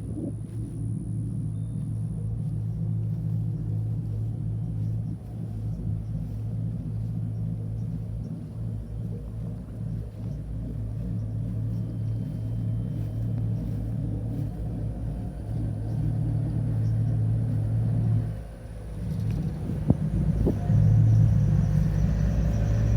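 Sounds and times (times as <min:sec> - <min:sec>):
truck engine rumbling: 0:00.0 - 0:22.9.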